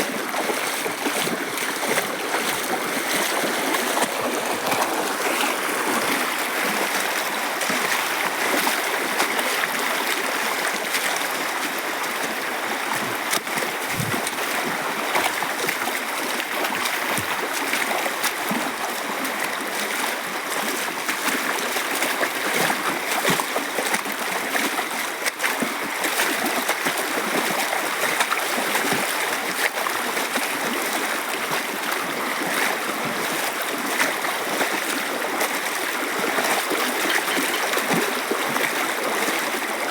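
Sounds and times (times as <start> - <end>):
stream rushing: 0.0 - 19.6, 33.3 - 39.9
soft low thumps: 13.8 - 14.4.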